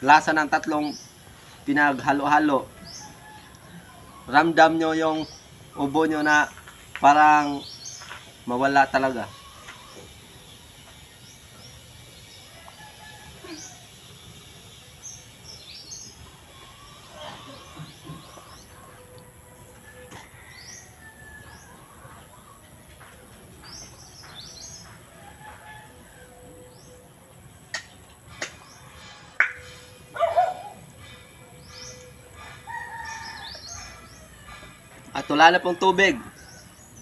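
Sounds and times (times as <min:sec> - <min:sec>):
small birds chirping: 0:00.0 - 0:19.3.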